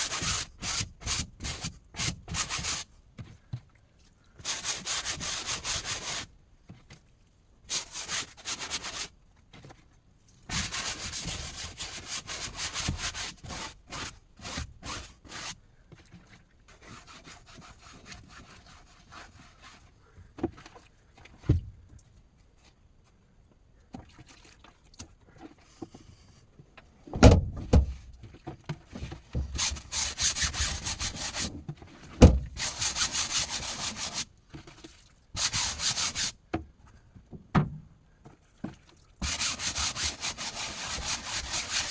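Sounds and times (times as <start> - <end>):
rubbing and scraping on wood: 0.0 - 2.9, 4.4 - 6.3, 7.7 - 9.8, 10.5 - 21.6, 27.8 - 36.4, 39.2 - 41.9.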